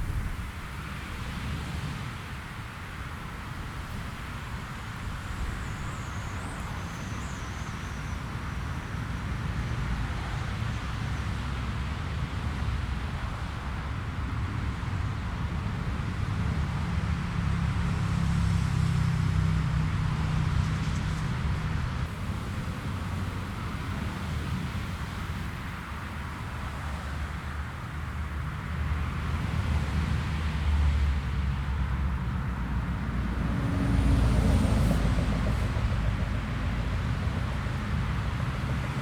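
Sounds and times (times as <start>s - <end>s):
jet engine rumble: 22.0s - 29.6s, 31.8s - 39.0s.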